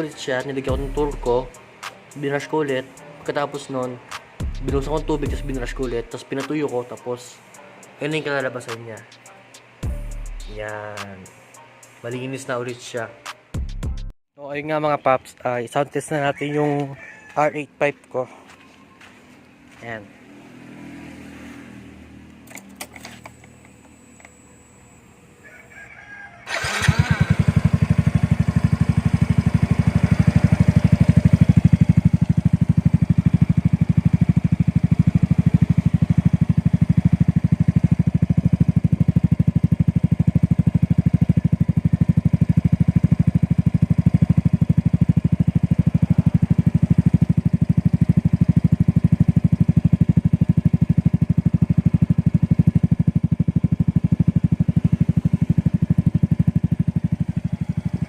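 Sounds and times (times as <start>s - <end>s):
motorcycle engine idling: 0.0s - 1.6s, 26.5s - 58.0s.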